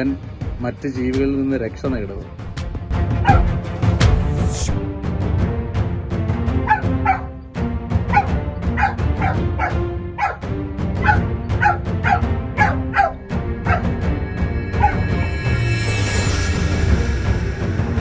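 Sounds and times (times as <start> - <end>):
background music: 0.0 - 18.0
puppy yelping: 3.2 - 3.6, 6.6 - 7.4, 8.1 - 10.4, 11.0 - 13.9, 14.8 - 15.0.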